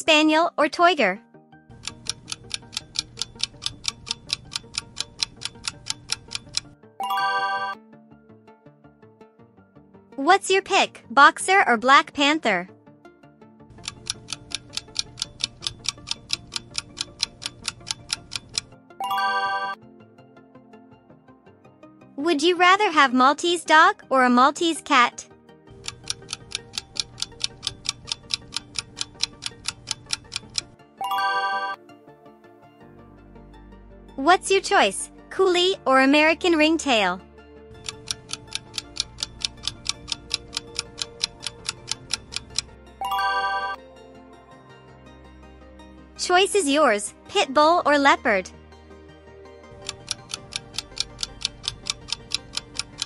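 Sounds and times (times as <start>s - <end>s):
faint background music: 0.0s - 7.8s, 10.1s - 20.1s, 21.8s - 53.0s
countdown timer ticking: 1.7s - 7.8s, 13.7s - 19.8s, 23.7s - 31.8s, 34.2s - 43.8s, 49.7s - 53.0s
bright chime: 7.0s - 7.8s, 43.0s - 43.8s.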